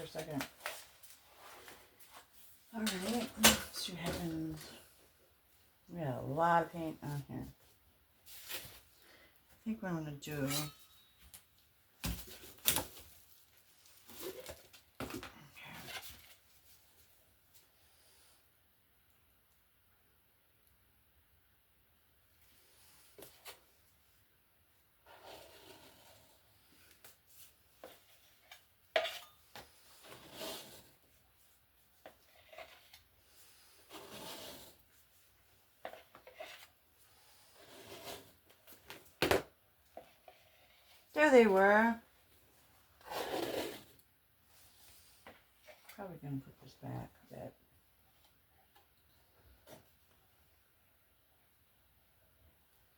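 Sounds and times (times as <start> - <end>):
rubbing or scraping: 25.0 - 26.6, 27.3 - 31.2, 32.0 - 38.7, 43.0 - 46.0.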